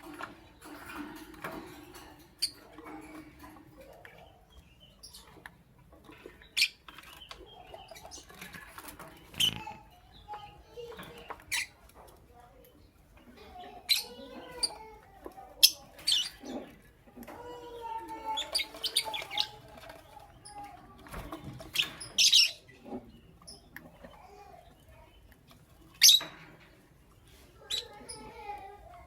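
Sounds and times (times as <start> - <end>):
lovebirds chirping: 2.2 - 29.0
soft bird chattering: 6.1 - 20.9, 21.5 - 26.6, 27.2 - 29.0.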